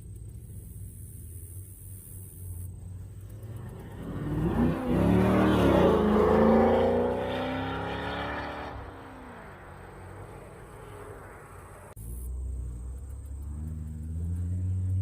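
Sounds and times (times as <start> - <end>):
car engine revving and accelerating: 3.2 - 15.0.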